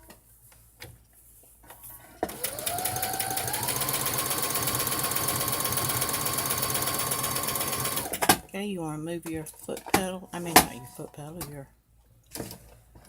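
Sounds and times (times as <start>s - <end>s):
sewing machine motor stitching: 2.2s - 8.3s.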